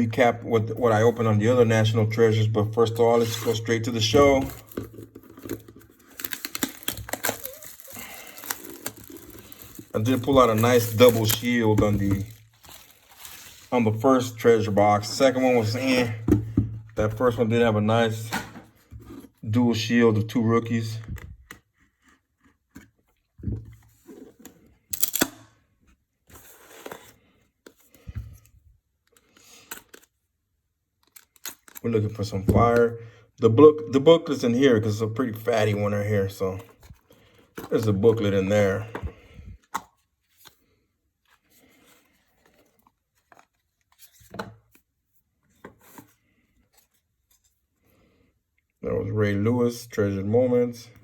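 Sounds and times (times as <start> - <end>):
trading cards rustling: 3.0 - 16.3, 41.3 - 44.8
packaging crinkling and tearing: 3.2 - 14.0, 31.0 - 31.9.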